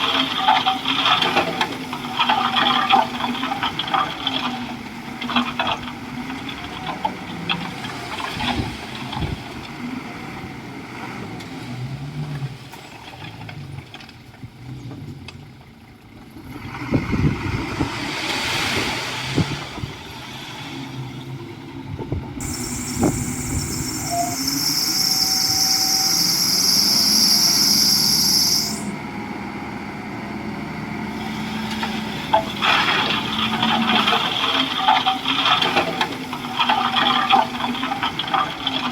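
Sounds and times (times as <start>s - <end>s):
bulldozer diesel engine running: 0.0s - 18.1s, 19.6s - 38.9s
high steady hiss: 22.4s - 28.9s.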